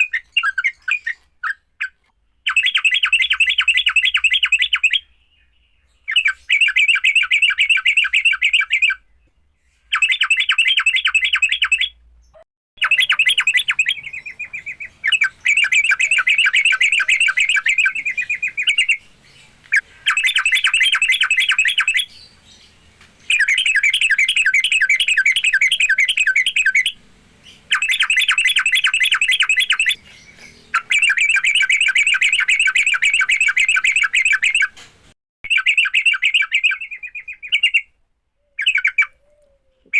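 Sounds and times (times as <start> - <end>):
bird chattering: 9.9 - 34.8, 35.5 - 37.9, 38.6 - 39.9.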